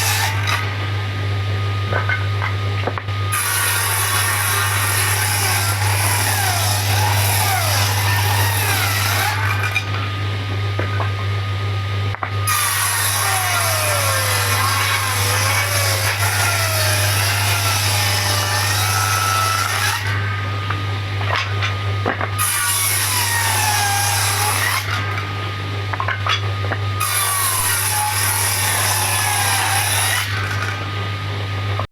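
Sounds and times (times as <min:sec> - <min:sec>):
power tool cutting wood: 0:00.0 - 0:00.8, 0:03.3 - 0:10.0, 0:12.4 - 0:20.3, 0:22.4 - 0:25.3, 0:27.0 - 0:30.9.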